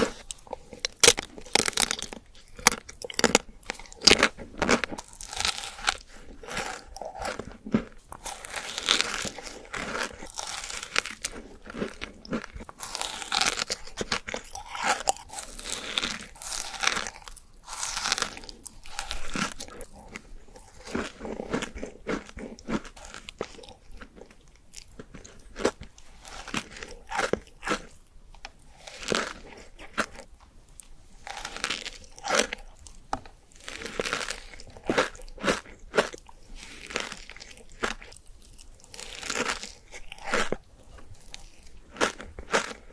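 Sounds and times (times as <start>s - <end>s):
crunchy sweets being chewed: 0.0s - 42.9s.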